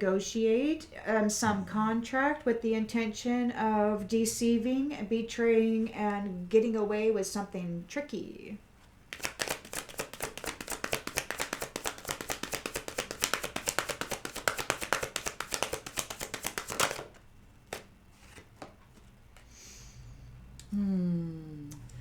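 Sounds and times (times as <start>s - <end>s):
cards being shuffled: 9.1s - 18.8s.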